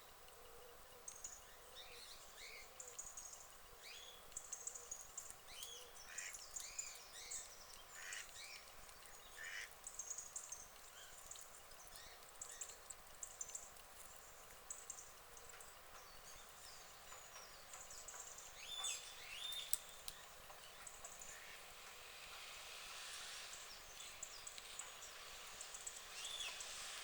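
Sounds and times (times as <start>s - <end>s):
ducks quacking faintly: 5.8s - 6.4s, 7.8s - 8.4s, 9.3s - 9.8s, 21.2s - 21.8s.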